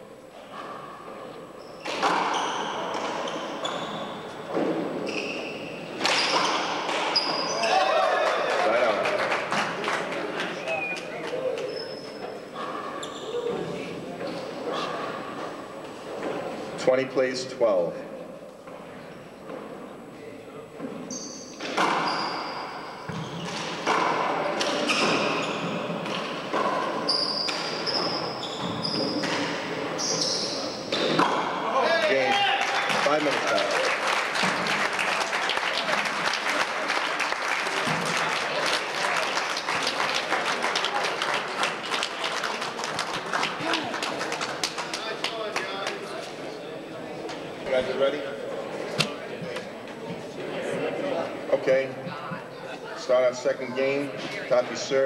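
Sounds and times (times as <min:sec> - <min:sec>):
short high squeaks: 0:05.0 - 0:07.7, 0:21.1 - 0:23.6
handball smacking court walls: 0:23.1 - 0:29.6.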